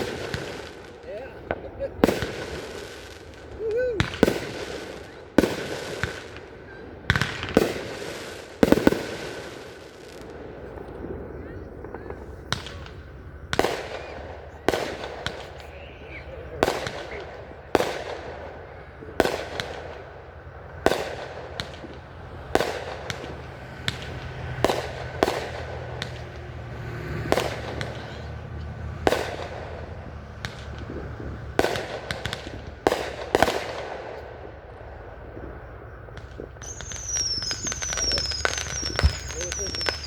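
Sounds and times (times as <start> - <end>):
firework shell bursts: 36.1 - 40.0.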